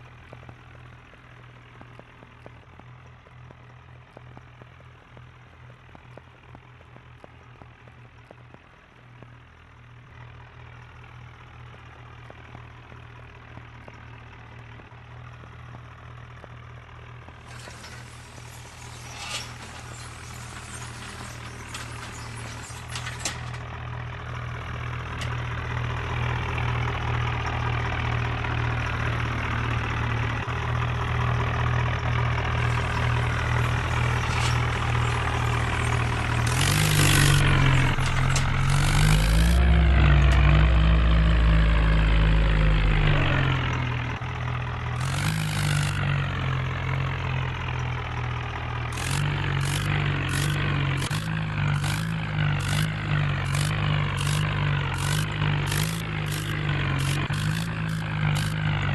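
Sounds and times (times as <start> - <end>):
tractor engine revving: 17.4 - 58.9.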